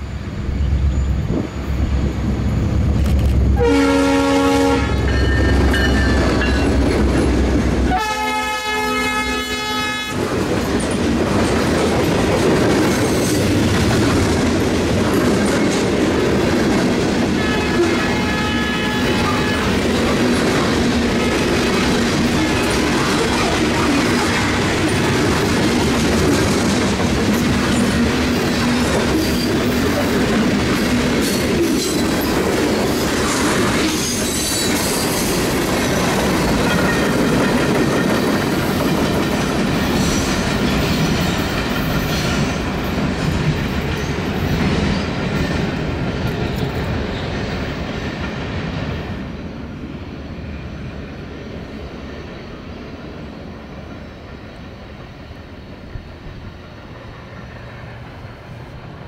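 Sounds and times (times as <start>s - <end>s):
train wheel squeal: 0.0s - 2.6s, 5.0s - 6.9s, 31.2s - 35.4s
freight train wheels clacking: 2.4s - 49.4s.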